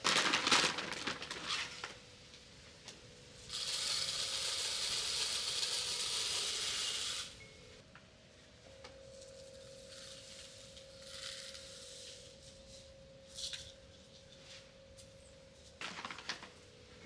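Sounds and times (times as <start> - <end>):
birdseed pouring into feeder: 3.5 - 7.3.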